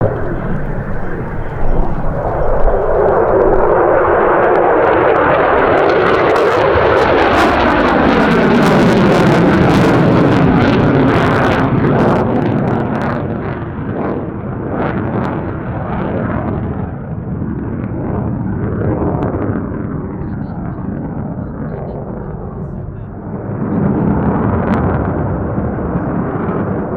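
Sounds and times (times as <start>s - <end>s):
jet engines roaring: 0.0s - 26.9s.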